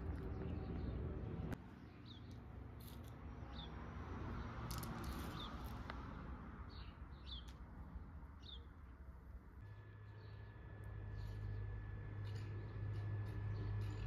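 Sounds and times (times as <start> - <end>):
bird chirping: 0.1 - 2.4, 6.7 - 7.6, 8.4 - 8.8
low hum: 9.6 - 14.0.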